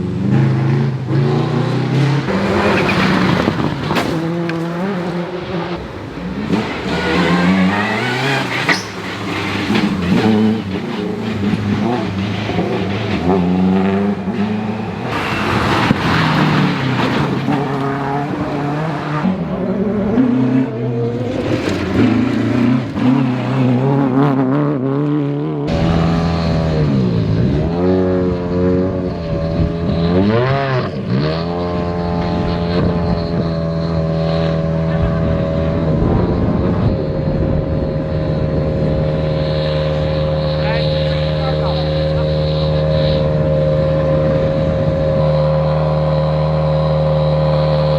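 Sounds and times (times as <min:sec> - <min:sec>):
rally car engines revving: 0:00.0 - 0:47.9
single engine holding steady note: 0:34.7 - 0:47.9.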